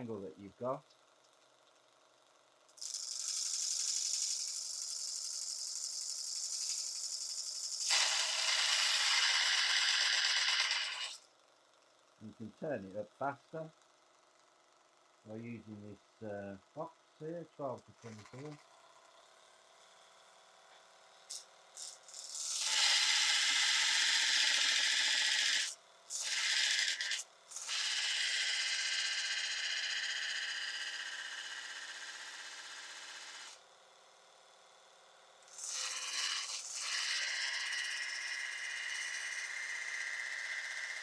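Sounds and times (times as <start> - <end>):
belt sander motor hum: 2.8 - 11.2, 21.3 - 33.6
chisel grinding on sanding belt: 2.8 - 11.2, 21.3 - 33.6, 35.5 - 41.0.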